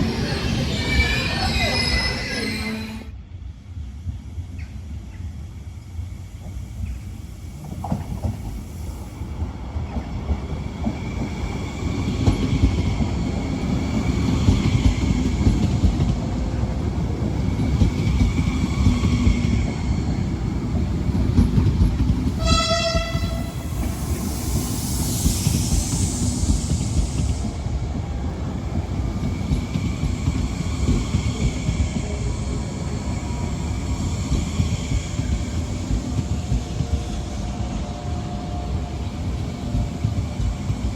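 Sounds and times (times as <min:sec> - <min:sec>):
train wheels rumbling on rails: 0:03.6 - 0:40.9
train horn blast: 0:22.4 - 0:23.8.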